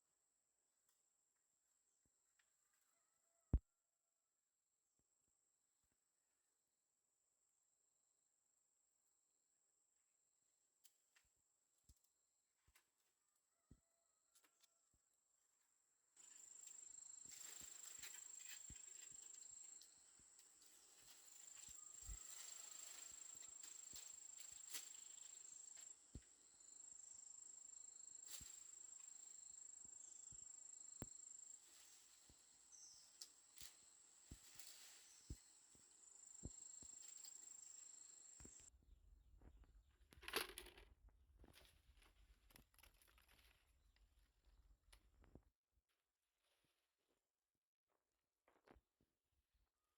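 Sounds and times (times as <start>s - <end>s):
small clicks and crackles: 16.2s - 26.3s, 40.1s - 43.7s.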